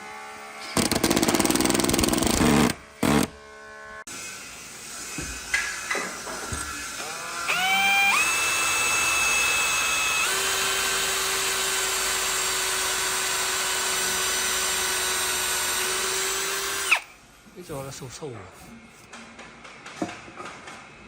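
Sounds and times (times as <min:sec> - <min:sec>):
power tool motor whining: 0:00.6 - 0:03.9, 0:05.1 - 0:17.2.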